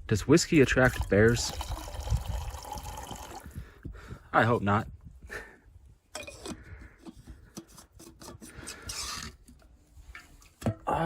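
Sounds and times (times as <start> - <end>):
scraping and rubbing: 6.4 - 10.4.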